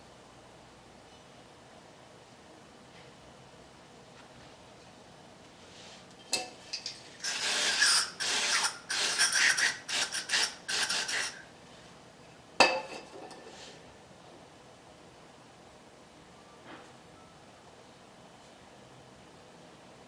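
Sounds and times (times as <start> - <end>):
scraping metal parts by hand: 6.7 - 11.4.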